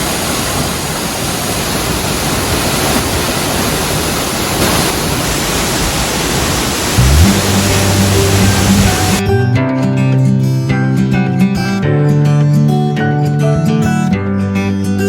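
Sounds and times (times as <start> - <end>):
waterfall roaring: 0.0 - 9.2.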